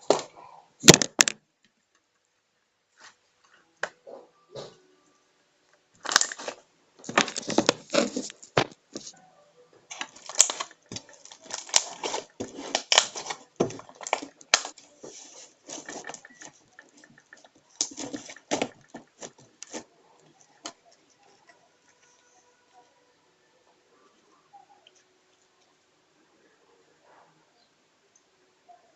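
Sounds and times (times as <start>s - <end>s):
slime squelching and popping: 9.9s - 19.8s.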